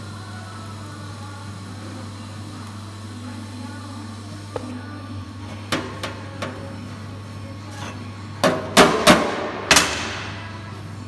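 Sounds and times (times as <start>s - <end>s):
hammer blows on sheet metal: 8.4s - 10.4s.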